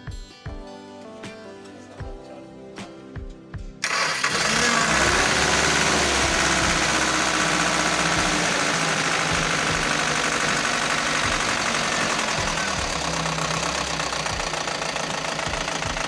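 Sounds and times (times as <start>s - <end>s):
truck engine idling with knocking: 3.9s - 16.0s.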